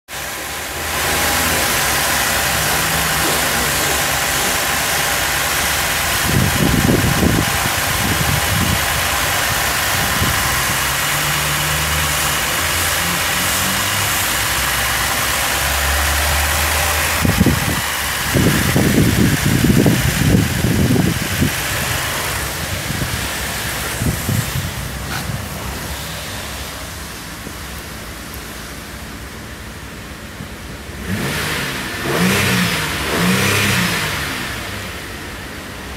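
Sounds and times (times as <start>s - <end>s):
car engine idling: 0.1s - 35.9s
hiss: 0.2s - 27.3s
low rumbles on microphone: 17.2s - 27.8s.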